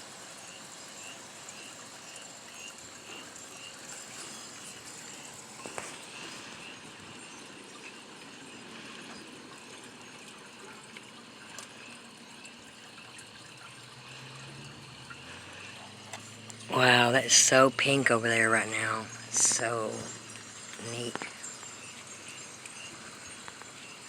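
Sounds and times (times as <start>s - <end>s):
faint ticks: 20.3s - 23.8s.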